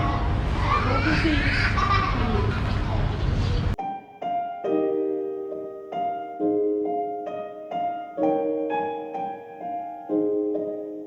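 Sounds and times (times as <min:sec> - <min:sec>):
soft solo piano: 0:03.7 - 0:11.0.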